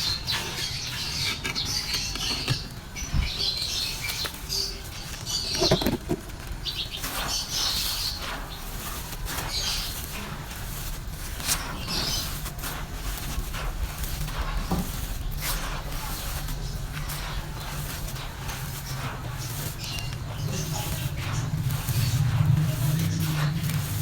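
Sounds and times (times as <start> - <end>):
dry material crumbling in clay pot: 5.2 - 6.8.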